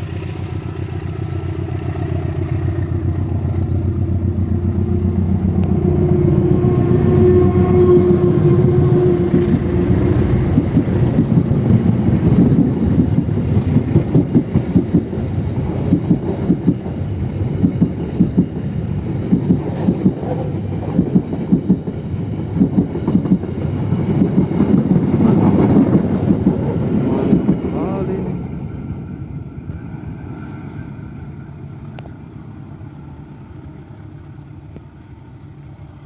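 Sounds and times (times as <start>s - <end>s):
train rumble: 0.0s - 36.0s
train wheels clacking on rail joints: 8.2s - 27.9s.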